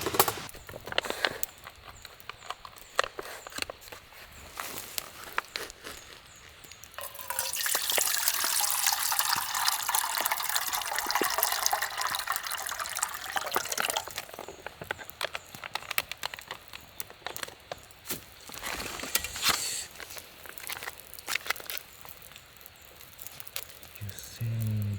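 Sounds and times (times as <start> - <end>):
handling clicks and knocks: 0.0 - 4.0
water being poured: 7.0 - 14.5.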